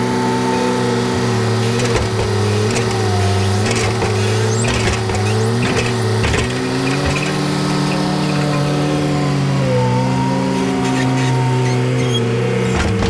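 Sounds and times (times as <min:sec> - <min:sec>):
skid loader engine running: 0:00.0 - 0:13.0
knocks and rattles: 0:01.7 - 0:08.6, 0:12.7 - 0:13.0.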